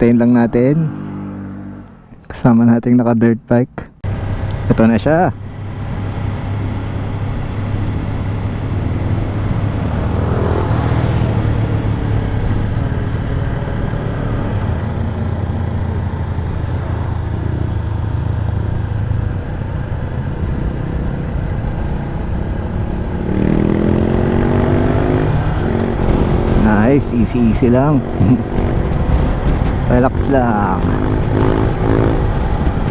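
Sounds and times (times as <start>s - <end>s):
vehicle passing: 0.0s - 2.1s, 5.6s - 32.9s.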